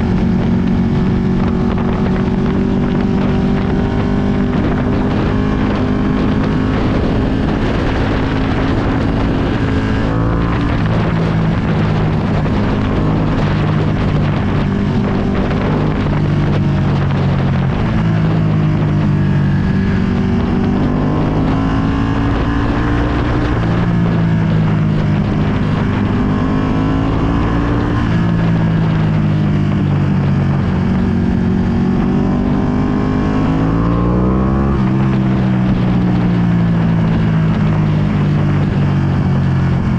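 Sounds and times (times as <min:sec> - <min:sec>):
motorcycle engine revving: 0:00.0 - 0:39.9
wind noise on microphone: 0:00.0 - 0:39.9.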